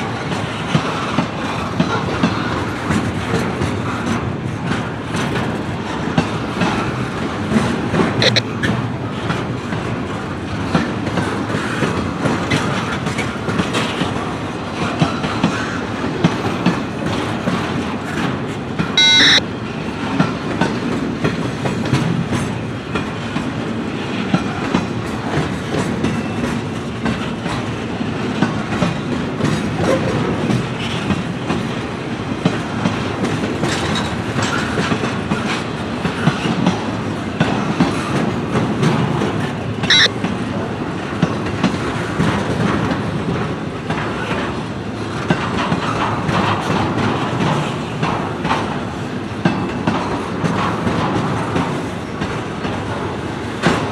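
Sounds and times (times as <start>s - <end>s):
train wheels clicking over rail joints: 0.0s - 19.0s, 20.0s - 53.9s
train rumble: 0.0s - 53.9s
short high-pitched tone: 19.0s - 19.4s, 39.9s - 40.1s.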